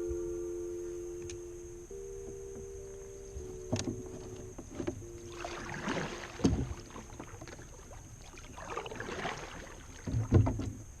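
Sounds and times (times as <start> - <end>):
paddle splashing through water: 3.4 - 11.0.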